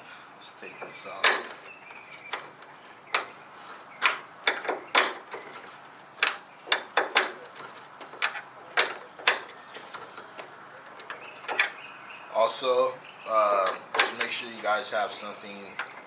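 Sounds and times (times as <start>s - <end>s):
wrench clicking and knocking: 4.0s - 5.6s, 6.2s - 11.8s.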